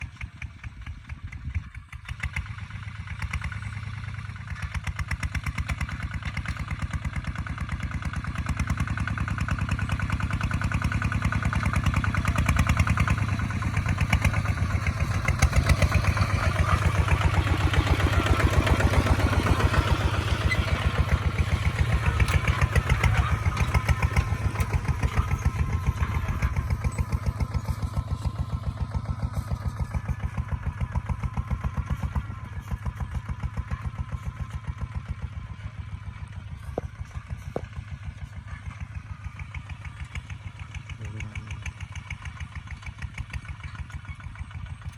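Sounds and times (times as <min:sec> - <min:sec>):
diesel engine thumping: 0:03.2 - 0:39.1.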